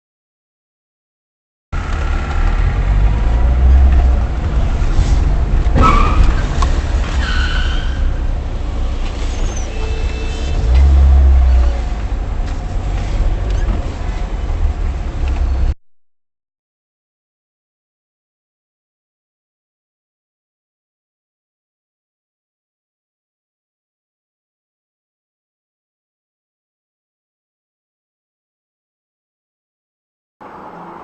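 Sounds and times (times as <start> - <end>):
car road and wind rumble: 1.8 - 15.8, 30.4 - 31.0.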